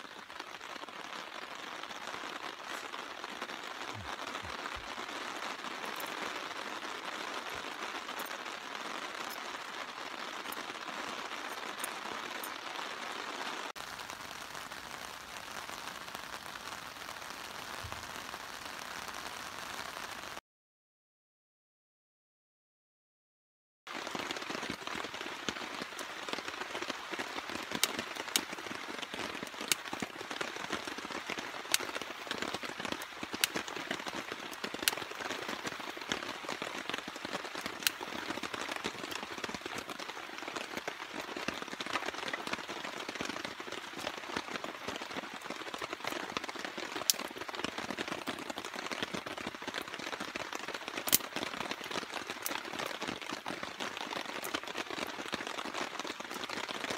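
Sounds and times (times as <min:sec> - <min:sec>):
raindrops pattering nearby: 0:00.0 - 0:20.4, 0:23.9 - 0:56.9
steady rain falling: 0:00.0 - 0:20.4, 0:23.9 - 0:56.9.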